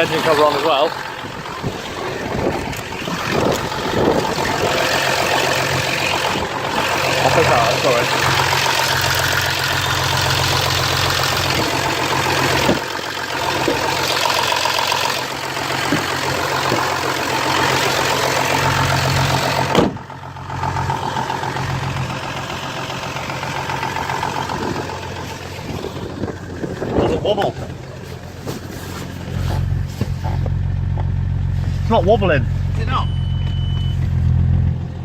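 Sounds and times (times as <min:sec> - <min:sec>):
diesel engine idling: 0:00.0 - 0:35.0
single thump: 0:19.7 - 0:20.0.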